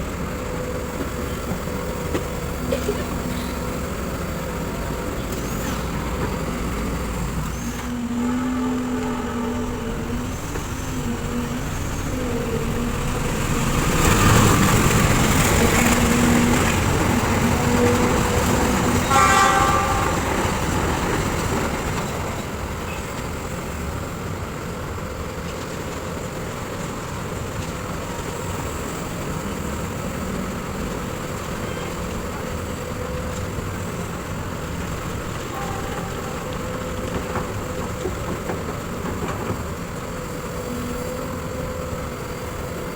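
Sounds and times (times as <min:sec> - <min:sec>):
steady engine hum: 0:00.0 - 0:42.9
vehicle horn toot: 0:08.0 - 0:10.0, 0:19.0 - 0:20.6, 0:35.5 - 0:36.9.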